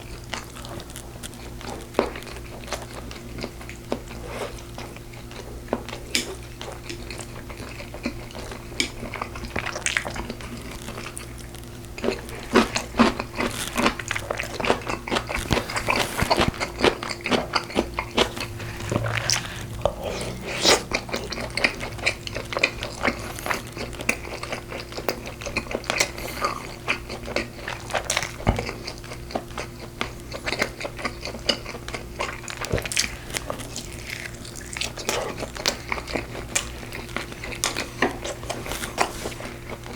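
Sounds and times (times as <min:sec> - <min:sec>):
chewing and mouth smacks: 0:04.8 - 0:39.9
low hum: 0:17.6 - 0:24.4.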